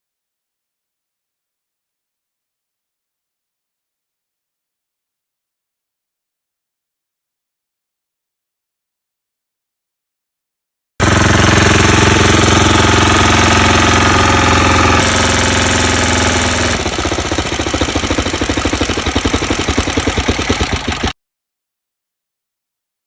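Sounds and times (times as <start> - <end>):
small motorcycle engine running: 11.0 - 21.2.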